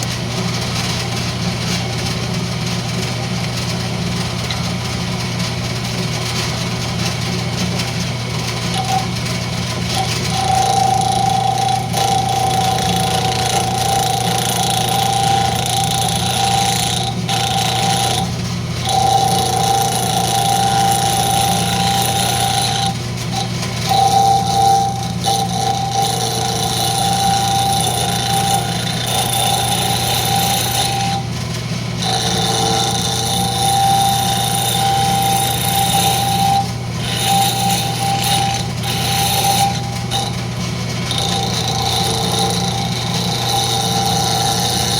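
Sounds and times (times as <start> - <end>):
wood lathe humming: 0.0 - 44.9
steady whine: 7.8 - 44.9
turning tool cutting wood hiss: 8.7 - 9.2, 9.9 - 44.9.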